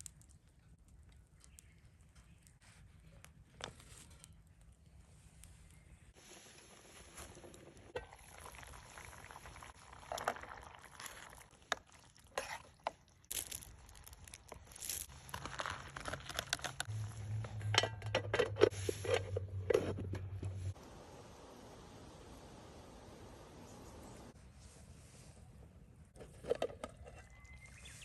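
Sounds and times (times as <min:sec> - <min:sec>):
crunching and crinkling: 0:00.0 - 0:05.8, 0:07.0 - 0:17.7.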